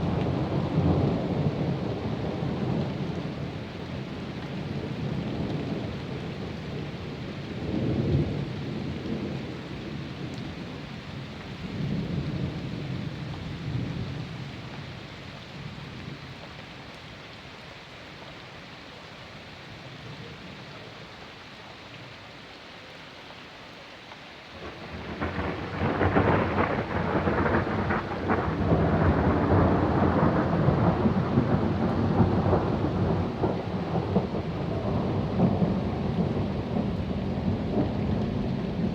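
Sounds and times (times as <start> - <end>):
loud thunderclap: 24.6 - 38.9
rolling thunder: 24.6 - 38.9.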